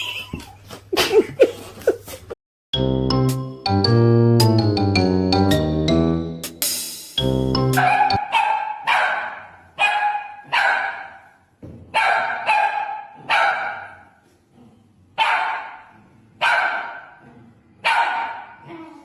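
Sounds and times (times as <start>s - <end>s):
dog barking: 7.8s - 14.2s, 15.2s - 17.2s, 17.8s - 18.9s.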